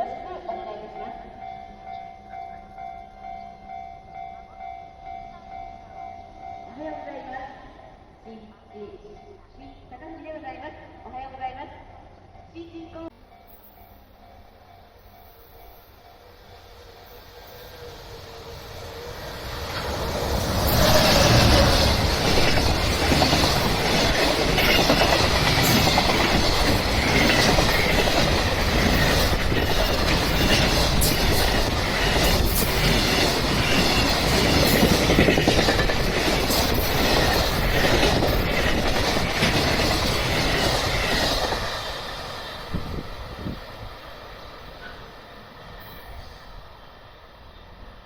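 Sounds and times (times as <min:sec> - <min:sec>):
train wheels clacking over rails: 0:19.4 - 0:43.7.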